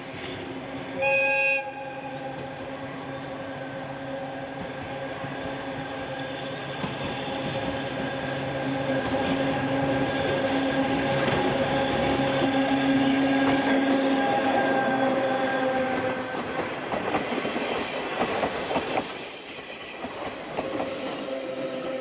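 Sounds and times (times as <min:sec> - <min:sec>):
train running noise: 0:00.0 - 0:22.0
train horn blast: 0:01.0 - 0:04.7.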